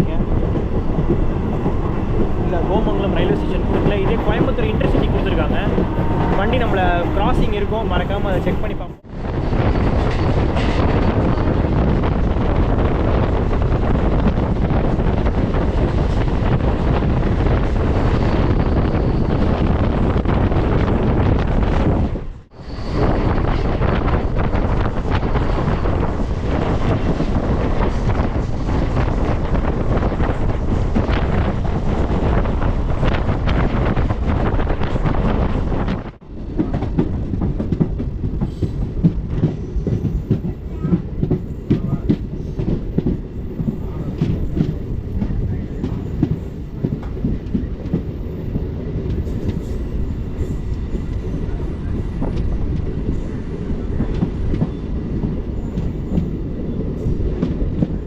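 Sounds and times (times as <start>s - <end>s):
train coach rumble: 0.0s - 58.0s
wind noise on microphone: 0.0s - 58.0s.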